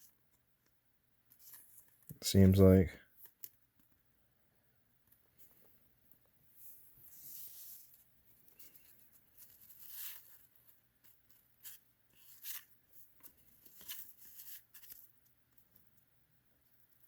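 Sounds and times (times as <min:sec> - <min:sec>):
cardboard cards rustling and sliding: 0:01.3 - 0:02.2, 0:06.5 - 0:15.6.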